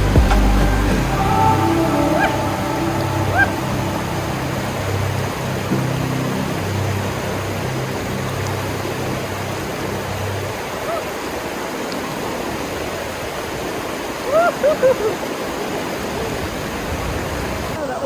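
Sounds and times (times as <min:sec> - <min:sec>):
low held notes: 0:00.0 - 0:10.8
rushing stream water: 0:00.0 - 0:18.0.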